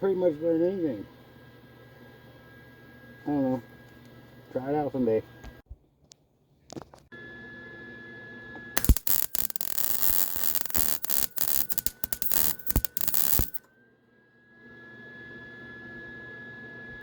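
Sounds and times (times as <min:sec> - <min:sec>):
thin high whine: 0:08.8 - 0:13.6
welder arc crackling: 0:08.8 - 0:13.6.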